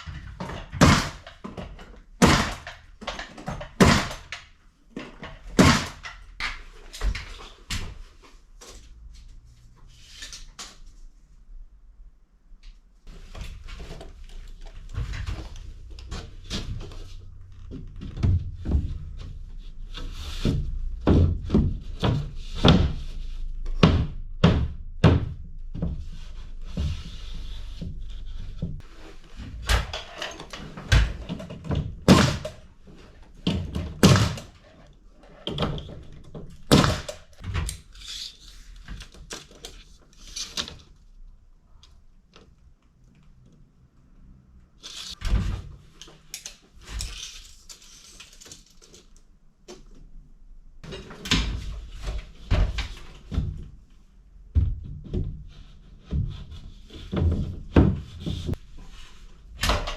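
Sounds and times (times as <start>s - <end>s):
building work knocks and thumps: 0.0s - 9.2s, 13.1s - 37.7s, 50.8s - 59.9s.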